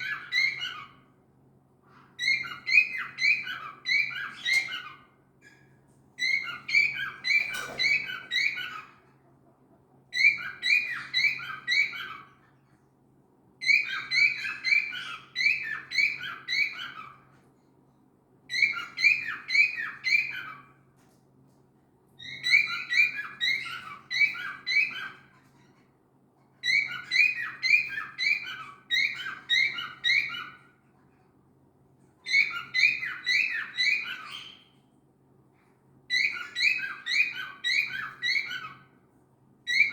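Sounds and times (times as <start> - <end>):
cockatiel chirping shrilly: 2.2 - 5.6, 6.2 - 8.9, 13.6 - 17.1, 22.3 - 25.2, 26.6 - 30.6, 32.3 - 34.6, 36.1 - 38.8.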